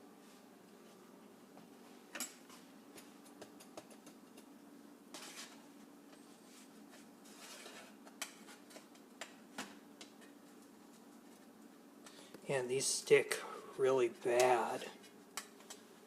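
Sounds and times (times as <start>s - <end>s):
low steady hum: 0.0s - 16.0s
utensil scraping metal tray: 7.2s - 8.0s.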